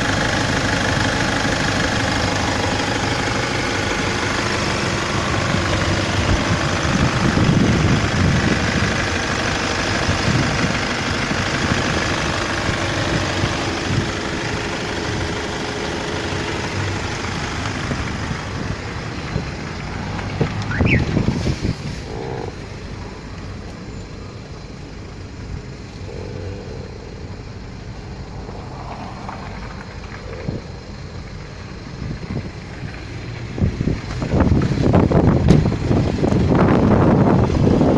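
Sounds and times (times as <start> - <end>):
diesel engine idling: 0.0 - 37.9
brief rising whistle: 20.7 - 21.1.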